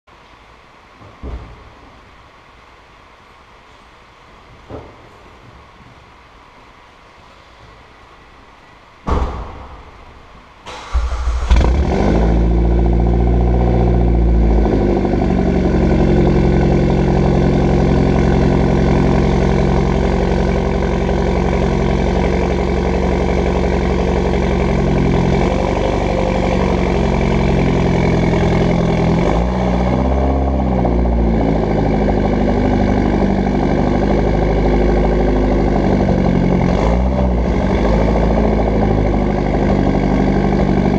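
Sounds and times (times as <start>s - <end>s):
car engine starting: 10.6s - 40.9s
car engine idling: 10.7s - 40.9s.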